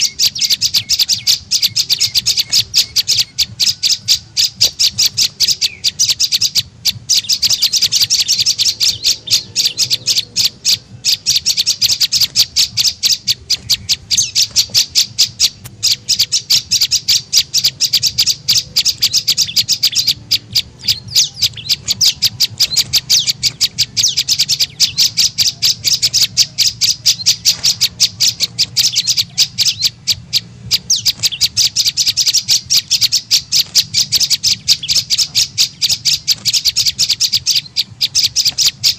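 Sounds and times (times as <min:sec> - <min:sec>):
bird calling with high chips: 0:00.0 - 0:38.9.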